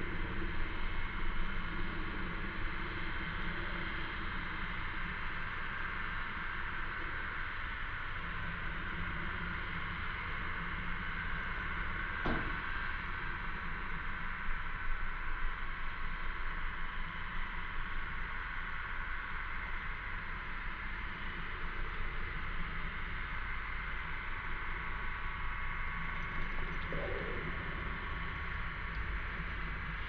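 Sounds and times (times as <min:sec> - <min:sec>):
low rumble: 0:26.4 - 0:30.0.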